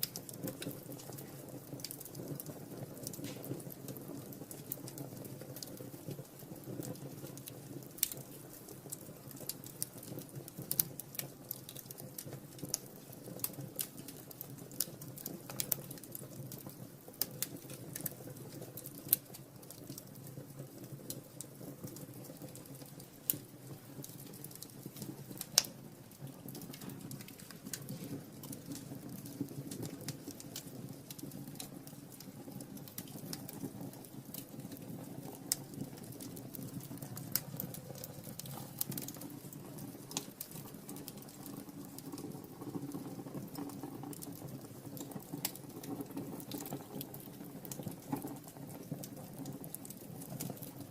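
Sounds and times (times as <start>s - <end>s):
wood fire crackling and popping: 0.0s - 50.9s
low rush of flame: 12.5s - 50.9s.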